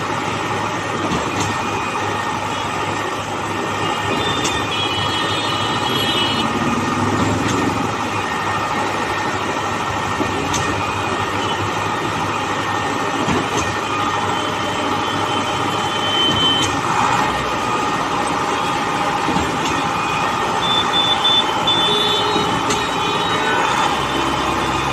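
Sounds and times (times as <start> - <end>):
heavy construction machinery running: 0.0 - 24.9
short high beeps: 20.6 - 23.4.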